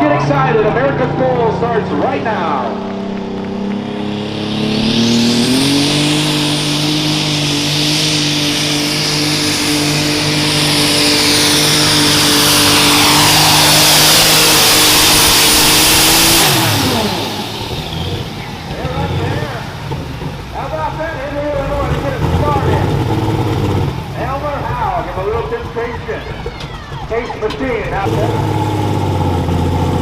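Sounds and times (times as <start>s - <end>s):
tractor engine revving high: 0.0s - 30.0s
thin high whistle: 4.2s - 14.8s.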